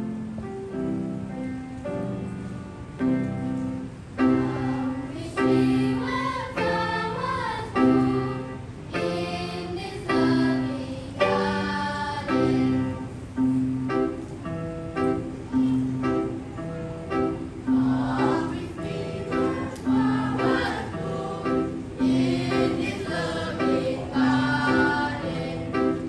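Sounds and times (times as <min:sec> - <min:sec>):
choir singing: 0:04.2 - 0:13.2, 0:17.7 - 0:26.0.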